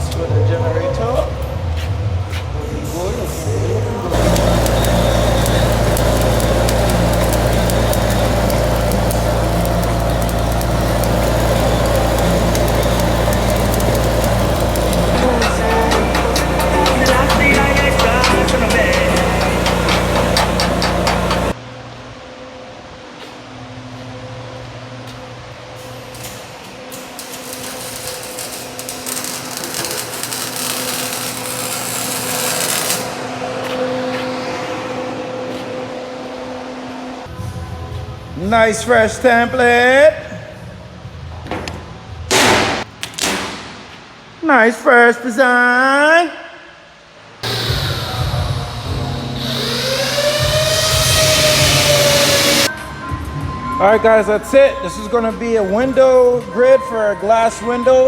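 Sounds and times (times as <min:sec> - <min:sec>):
welding generator engine humming: 0:04.0 - 0:21.6, 0:26.9 - 0:35.9, 0:47.4 - 0:52.7
sharp ticks and crackles: 0:04.1 - 0:15.2
metalworking tool hissing on steel: 0:04.1 - 0:21.6.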